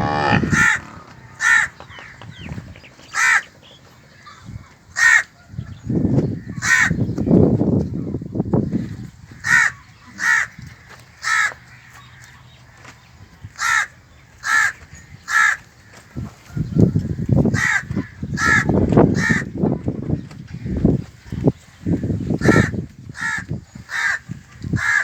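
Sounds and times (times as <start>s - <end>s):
crow cawing: 0.0s - 3.5s, 5.0s - 5.3s, 9.4s - 10.5s, 13.6s - 15.6s, 17.6s - 19.5s, 22.4s - 24.2s, 24.8s - 25.0s
low rumbling noise: 0.0s - 3.8s.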